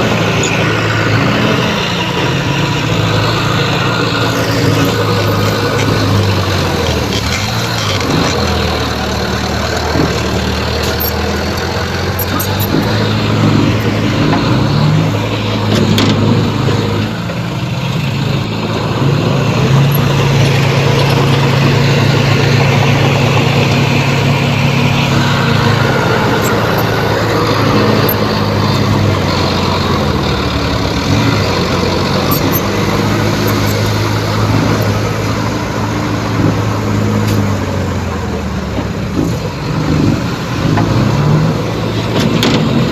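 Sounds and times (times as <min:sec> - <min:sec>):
diesel machinery engine hum: 0:00.0 - 0:42.9.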